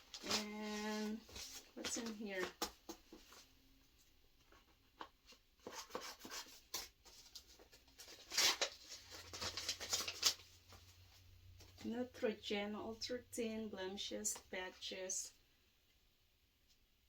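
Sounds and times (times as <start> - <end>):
packaging rustling and crinkling: 0.0 - 3.5, 4.4 - 11.8.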